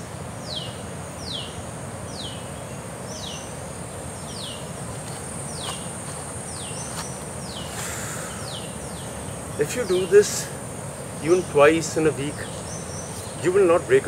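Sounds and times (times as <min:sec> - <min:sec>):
high insect hum: 0:00.0 - 0:14.0.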